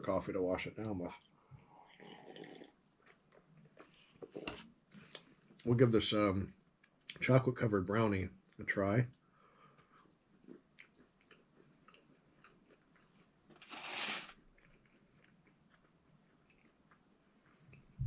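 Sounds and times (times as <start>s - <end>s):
person chewing: 2.0s - 5.6s, 9.8s - 17.7s.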